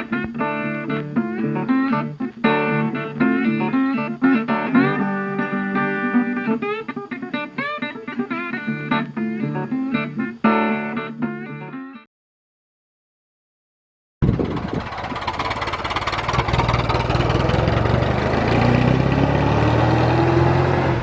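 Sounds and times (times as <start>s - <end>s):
plucked guitar notes: 0.0s - 12.1s.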